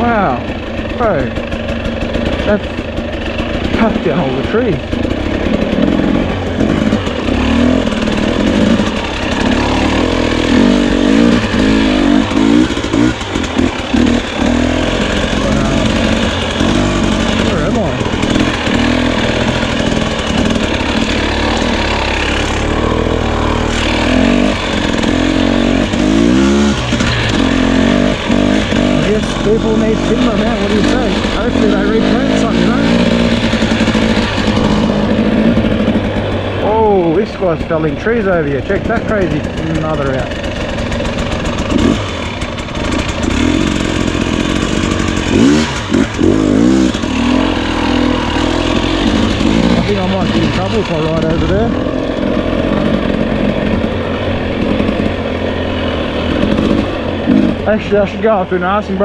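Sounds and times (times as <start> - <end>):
two-stroke dirt bike engine: 0.0 - 59.0.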